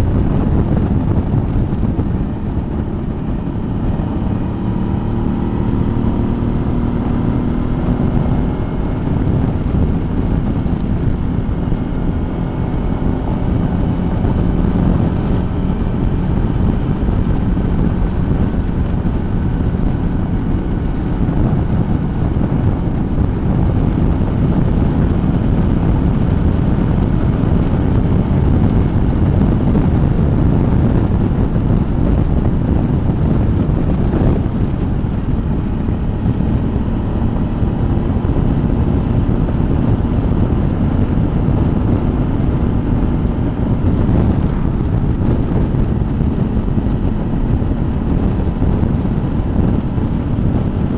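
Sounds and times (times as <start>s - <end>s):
motorcycle engine drone: 0.0s - 50.9s
wind rush on microphone: 0.0s - 50.9s.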